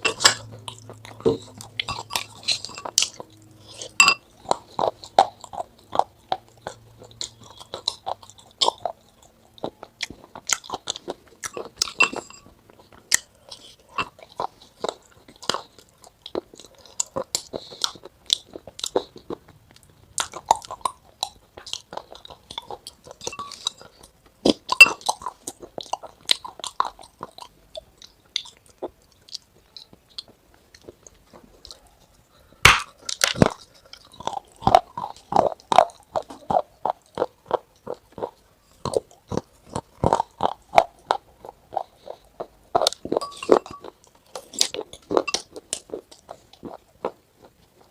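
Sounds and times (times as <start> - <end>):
chewing crisp food: 0.0 - 47.9.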